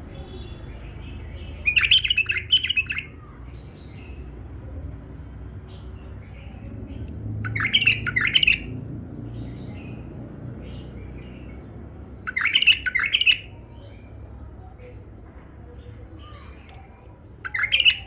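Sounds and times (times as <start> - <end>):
soft bird chirps: 0.0 - 4.2, 5.8 - 8.7, 12.3 - 15.0, 15.9 - 18.0
bird bubbling song: 1.3 - 3.2, 6.9 - 8.7, 12.3 - 13.5, 17.4 - 18.0.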